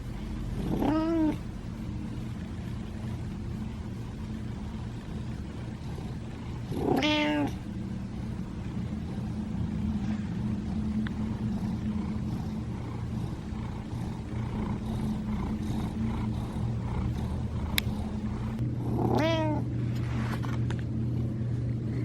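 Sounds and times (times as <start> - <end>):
steady low hum: 0.0 - 22.0
kitten meowing: 6.8 - 7.6.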